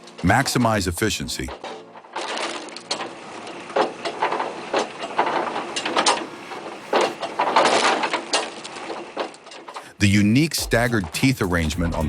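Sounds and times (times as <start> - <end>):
steady mechanical noise: 0.0 - 12.0
wood cracking on splitter wedge: 1.4 - 9.9.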